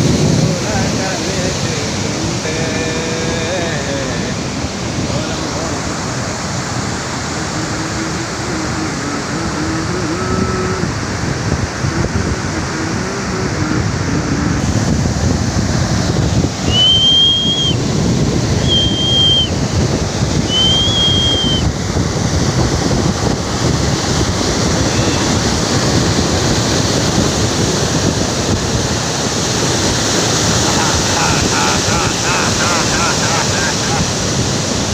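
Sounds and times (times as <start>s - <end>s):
waterfall rushing: 0.0s - 34.9s
wind buffeting microphone: 0.0s - 34.9s
short high whistles: 16.7s - 17.8s, 18.6s - 19.5s, 20.5s - 21.6s.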